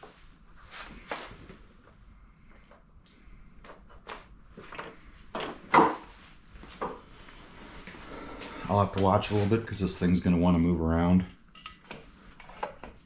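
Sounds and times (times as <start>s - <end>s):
knocks and clatter of parts: 3.7s - 6.1s.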